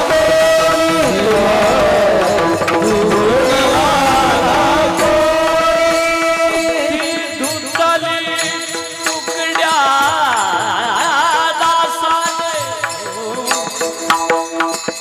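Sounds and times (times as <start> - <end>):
person singing long note: 0.0 - 7.3
sustained drone tones: 1.3 - 7.0.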